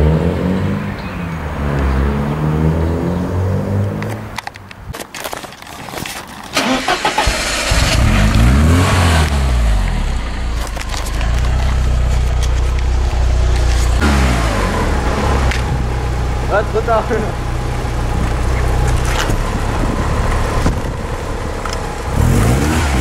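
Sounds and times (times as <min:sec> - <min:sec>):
car engine starting and idling: 0:06.4 - 0:23.0
car engine revving: 0:06.6 - 0:23.0.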